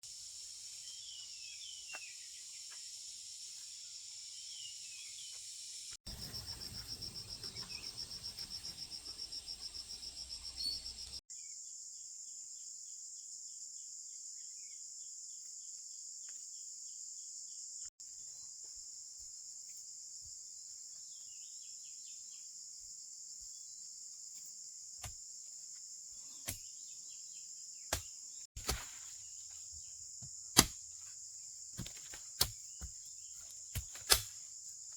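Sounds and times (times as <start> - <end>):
crickets and insects chirping: 0.0 - 11.2.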